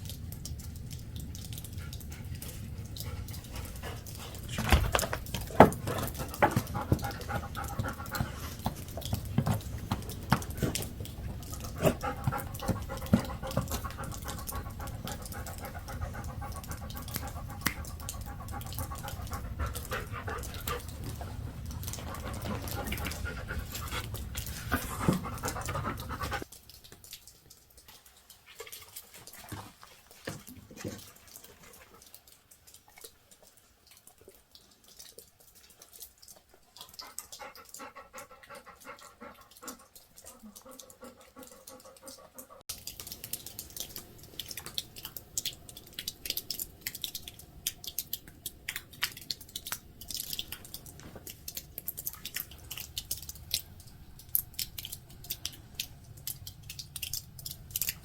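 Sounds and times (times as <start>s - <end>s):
dog panting: 1.5s - 26.5s, 36.8s - 42.7s.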